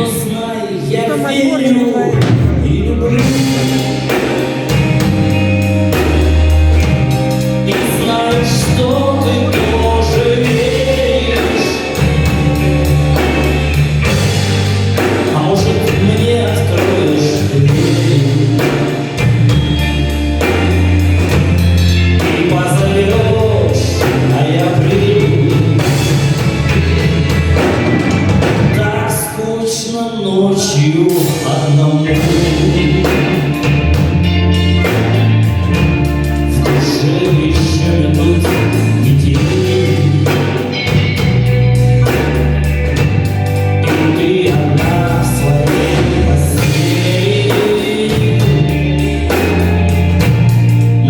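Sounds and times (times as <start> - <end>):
bass guitar notes: 0.0 - 51.0
live rock band music: 0.0 - 51.0
drum hits: 2.1 - 29.2.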